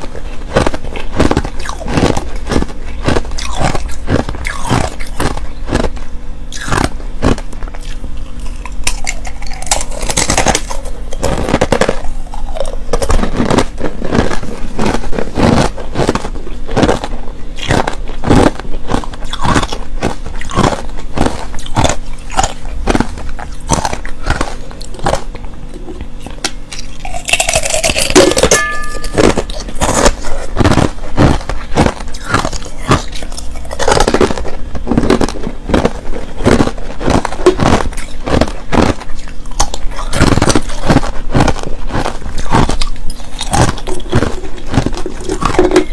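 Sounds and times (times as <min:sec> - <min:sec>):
crushed ice being chewed: 0:00.0 - 0:45.9.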